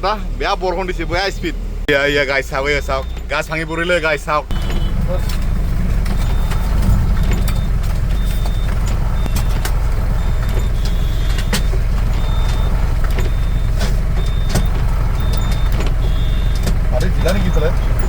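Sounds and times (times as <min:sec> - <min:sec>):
truck engine running: 0:00.0 - 0:18.0
short high beep: 0:06.2 - 0:09.6.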